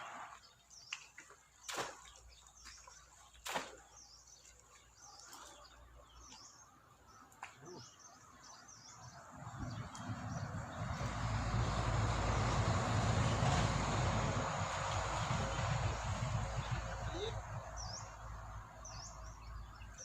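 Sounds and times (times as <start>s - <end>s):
small birds chirping: 0.0s - 11.5s, 15.2s - 20.0s
low rumble: 9.3s - 19.4s.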